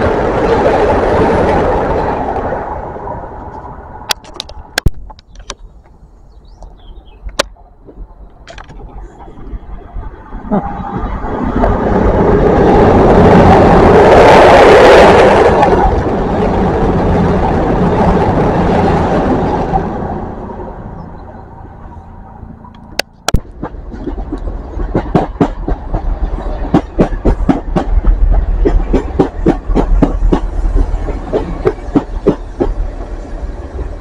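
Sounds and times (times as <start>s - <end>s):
train passing with wheel roar: 0.0s - 34.0s
train wheel clacks: 22.8s - 34.0s.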